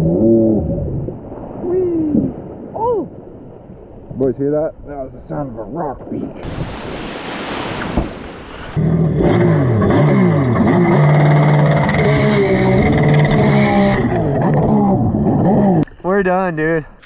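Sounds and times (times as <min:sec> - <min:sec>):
jet ski engines revving: 0:08.0 - 0:15.8.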